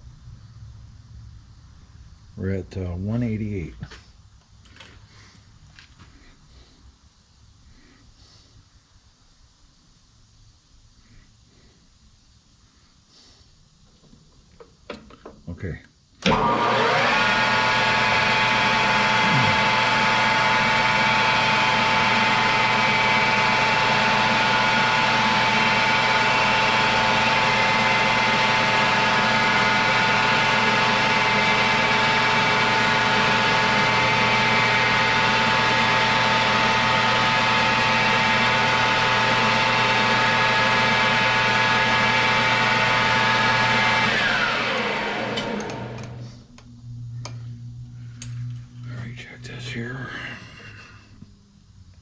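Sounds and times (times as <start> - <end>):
metal lathe gear whine: 16.2 - 51.0
lathe spindle winding down: 16.2 - 51.3.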